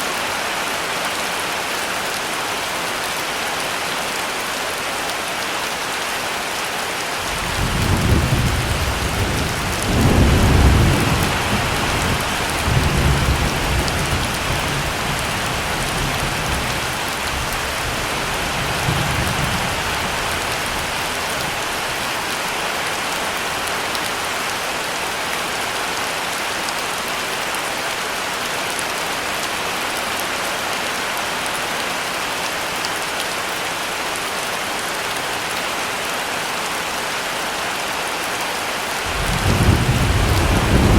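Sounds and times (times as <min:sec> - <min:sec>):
heavy rain: 0:00.0 - 0:40.9
thunder rumbling: 0:07.3 - 0:16.9, 0:39.1 - 0:40.9.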